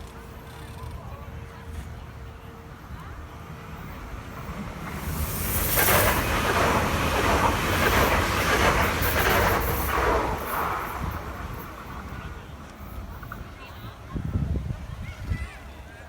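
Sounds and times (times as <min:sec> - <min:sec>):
wind buffeting microphone: 0:04.7 - 0:15.6.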